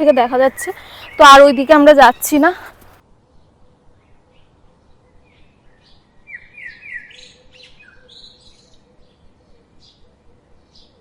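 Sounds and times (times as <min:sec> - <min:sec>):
birds chirping: 0:00.0 - 0:03.0.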